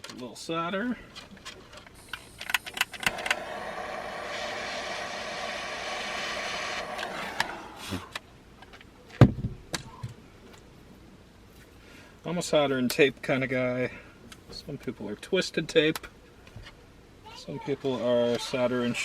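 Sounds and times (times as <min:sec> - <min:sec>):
torch flame hissing: 0:02.0 - 0:08.2.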